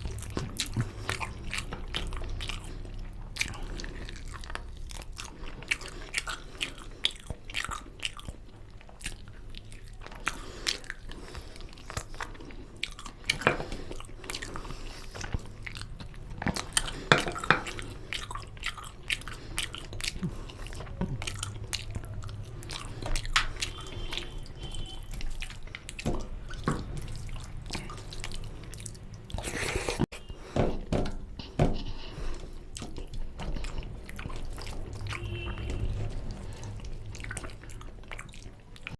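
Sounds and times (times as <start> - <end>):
wet mouth clicks and smacks: 0.0 - 29.9
person chewing food: 0.0 - 38.9.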